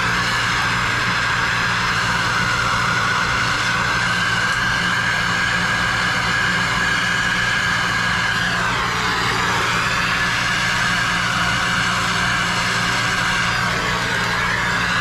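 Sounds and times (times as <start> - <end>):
soldering torch hissing: 0.0 - 15.0.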